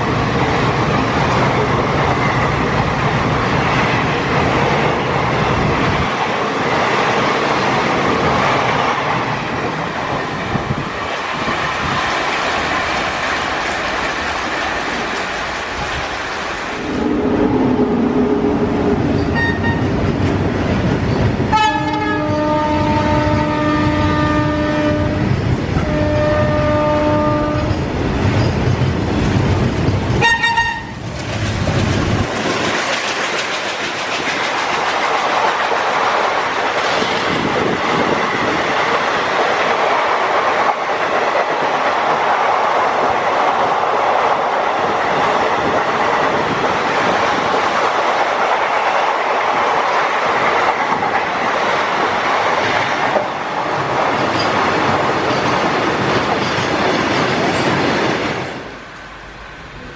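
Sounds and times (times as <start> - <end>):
locomotive horn blasts: 19.3 - 19.9, 21.5 - 27.8, 30.2 - 31.0
train wheels clacking on rails: 27.4 - 59.2.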